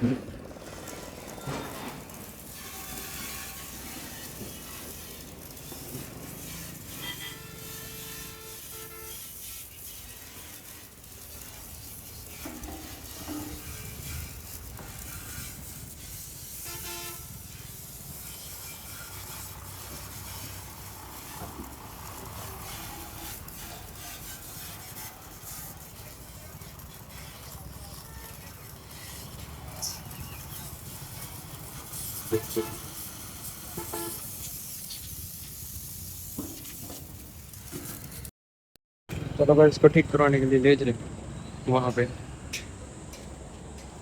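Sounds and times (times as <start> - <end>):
engine and traffic noise: 0.0 - 38.3, 39.1 - 44.0
horn tones: 5.7 - 10.9, 16.4 - 24.1, 31.9 - 34.3.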